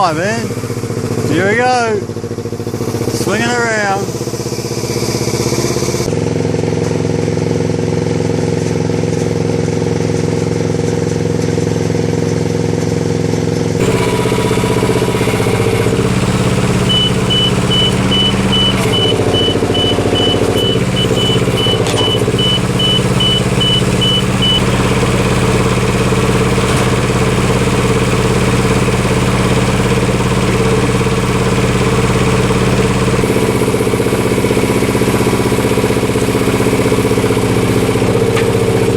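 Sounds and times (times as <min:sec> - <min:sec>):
crane engine running: 0:00.0 - 0:01.3, 0:02.0 - 0:38.9
high warning beeper: 0:16.0 - 0:25.1.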